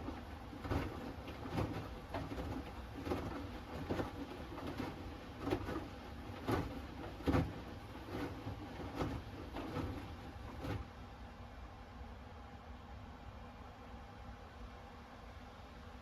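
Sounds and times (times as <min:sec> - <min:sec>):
laundry thudding and swishing: 0:00.0 - 0:10.9
washing machine hum: 0:00.0 - 0:16.0.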